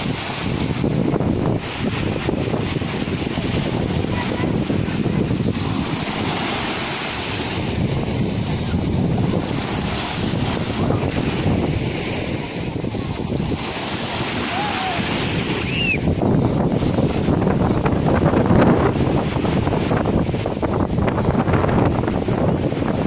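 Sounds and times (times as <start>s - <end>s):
sea waves washing on shore: 0.0s - 23.0s.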